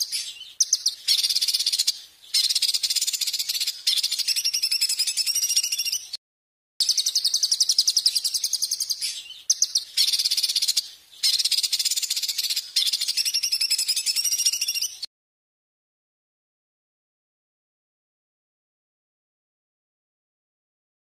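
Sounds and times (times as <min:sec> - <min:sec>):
songbird harsh pulsed trill: 0:00.0 - 0:06.2, 0:06.8 - 0:15.1.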